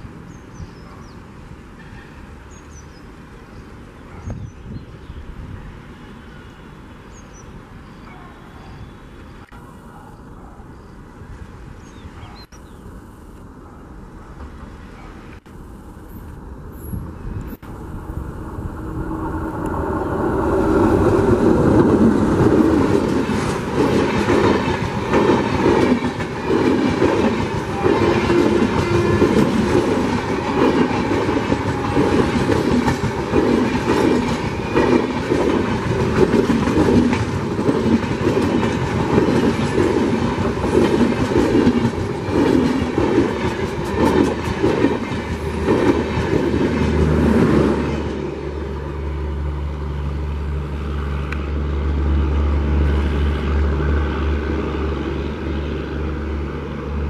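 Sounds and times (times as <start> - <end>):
train passing at speed: 0.0 - 57.0
wheels clacking over rail joints: 21.1 - 48.3.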